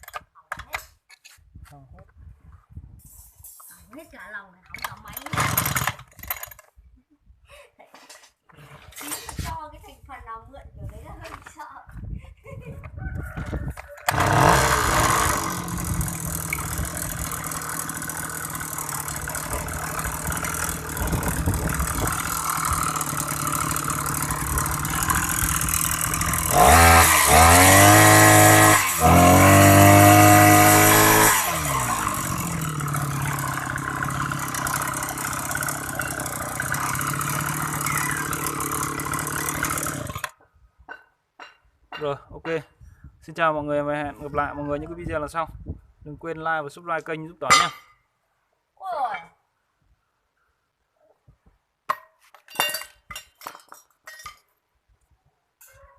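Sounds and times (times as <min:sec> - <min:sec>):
brush cutter engine revving: 0:04.8 - 0:06.1, 0:14.1 - 0:40.3.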